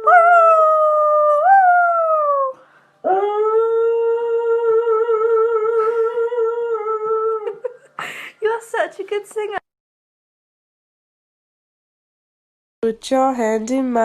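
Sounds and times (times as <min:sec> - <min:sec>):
dog howling: 0:00.0 - 0:07.5.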